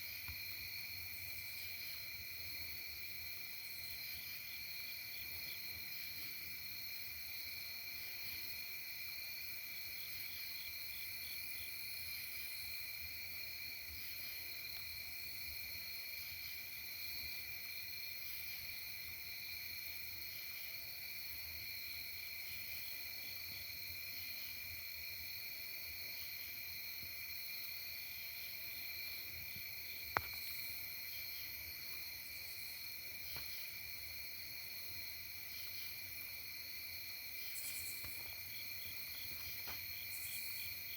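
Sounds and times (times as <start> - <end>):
insects trilling: 21.8 - 40.9.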